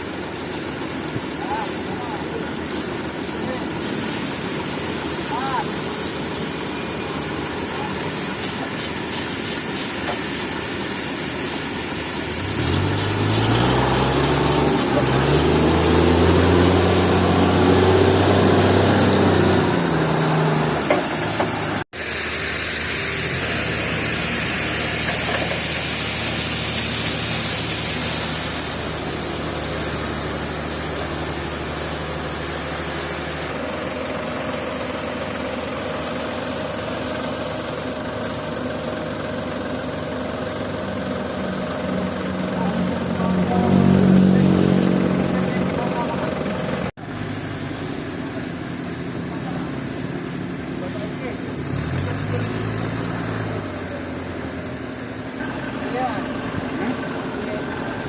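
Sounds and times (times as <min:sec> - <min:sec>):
engine running and revving: 0:10.1 - 0:21.9, 0:23.0 - 0:58.0.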